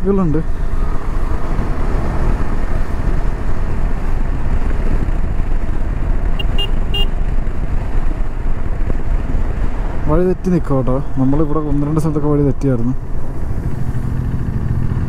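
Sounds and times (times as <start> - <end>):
wind rush on microphone: 0.0 - 11.9
motorcycle engine rumble: 0.0 - 15.0.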